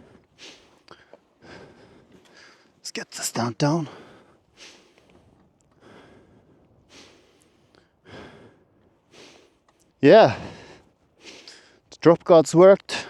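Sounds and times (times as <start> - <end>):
man breathing hard: 0.0 - 11.9.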